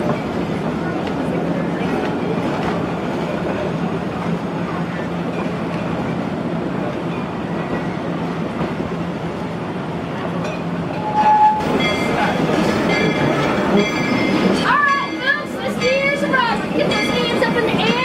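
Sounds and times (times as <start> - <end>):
train wheels rumbling on rail: 0.0 - 18.0
brief squeal: 11.0 - 11.6.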